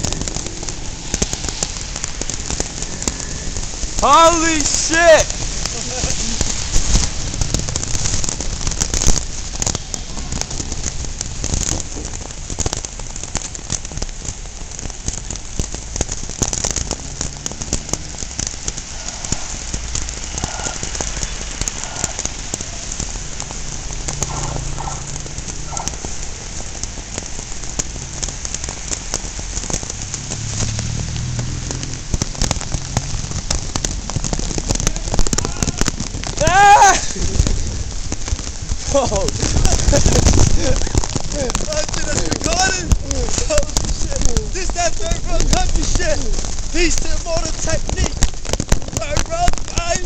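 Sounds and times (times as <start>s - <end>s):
heavy pouring rain: 0.0s - 50.0s.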